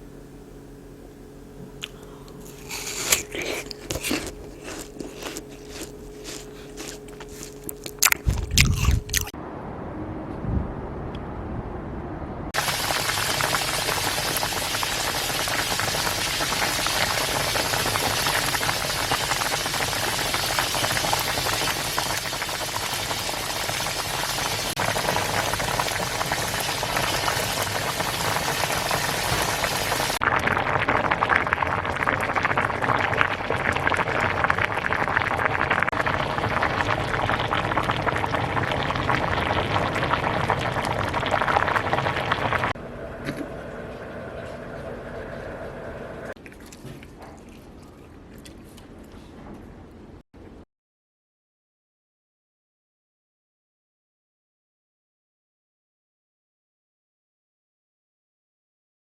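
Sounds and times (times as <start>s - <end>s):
stew bubbling and popping: 1.8s - 9.4s, 12.6s - 49.1s.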